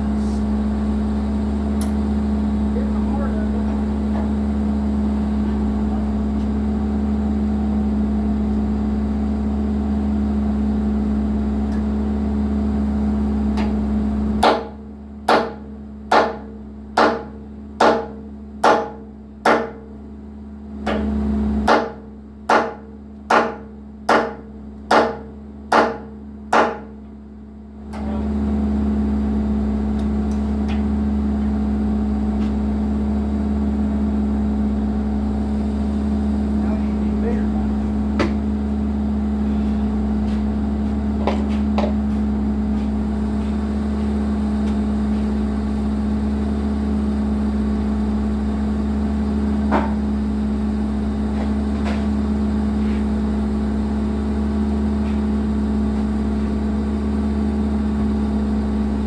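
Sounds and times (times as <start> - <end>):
excavator diesel engine running: 0.0 - 14.4, 27.8 - 59.0.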